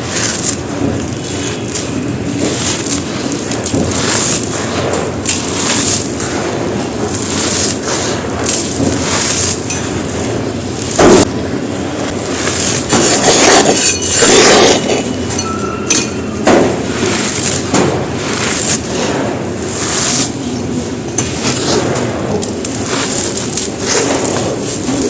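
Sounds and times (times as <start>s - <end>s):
concrete crumbling and crunching: 12.1s - 18.9s.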